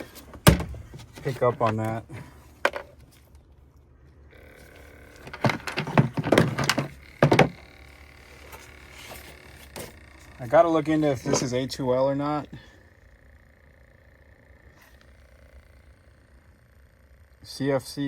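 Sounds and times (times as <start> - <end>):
knocks and rattles of gear: 0.0 - 11.6
sharp thunk: 0.4 - 0.8.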